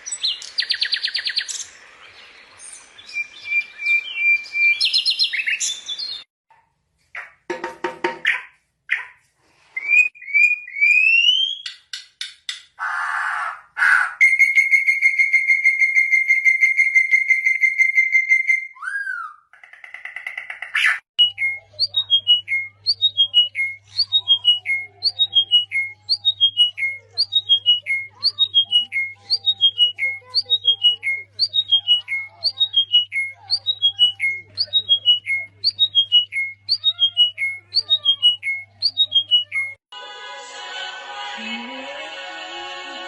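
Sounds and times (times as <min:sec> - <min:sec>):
pet birds whistling: 0:20.8 - 0:39.8.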